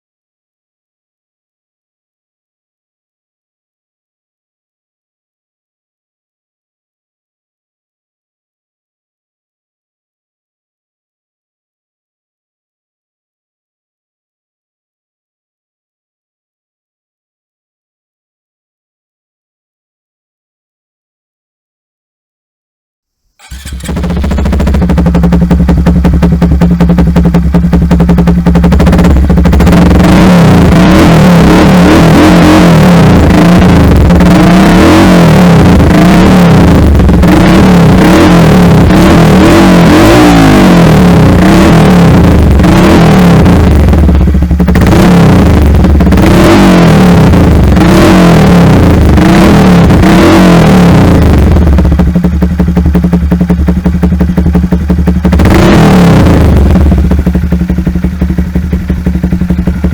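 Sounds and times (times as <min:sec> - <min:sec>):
motorcycle engine revving: 0:23.4 - 0:59.9.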